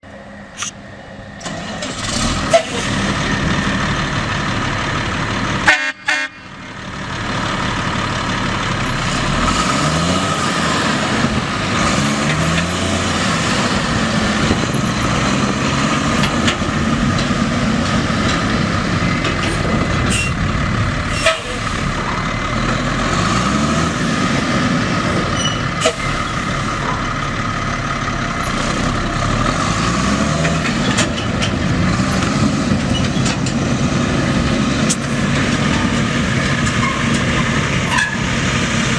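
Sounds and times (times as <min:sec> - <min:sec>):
truck diesel engine running: 0:00.0 - 0:38.9
short horn-like toot: 0:05.6 - 0:06.5, 0:21.1 - 0:21.6.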